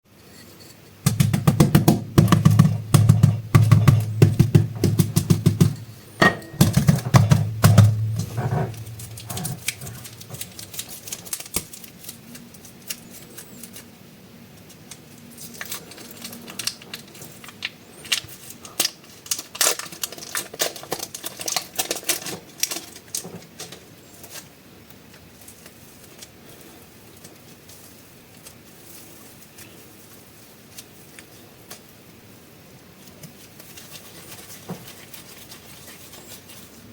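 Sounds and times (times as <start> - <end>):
plastic packaging crinkling: 6.6 - 13.9, 14.5 - 31.9, 33.0 - 36.9.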